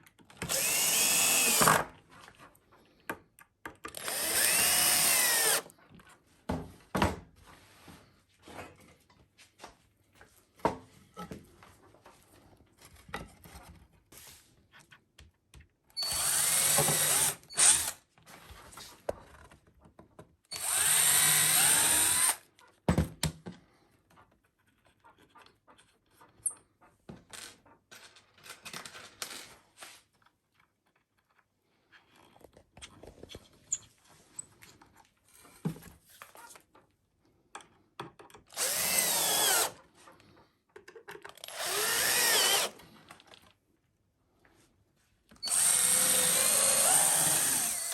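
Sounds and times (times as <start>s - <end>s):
power drill drilling into wood: 0.4s - 1.9s, 3.9s - 5.6s, 16.0s - 18.0s, 20.5s - 22.4s, 38.5s - 39.8s, 41.4s - 42.8s, 45.4s - 47.9s
tools and boards clicking: 40.7s - 41.6s.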